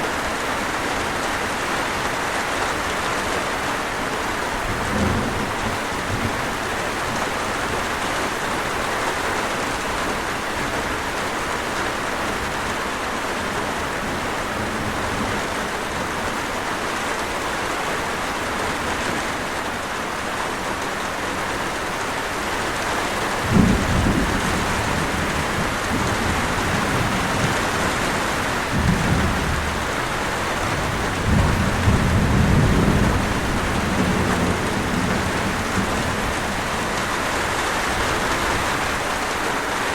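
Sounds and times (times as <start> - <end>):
steady rain falling: 0.0 - 39.9
thunder rumbling: 23.4 - 39.2.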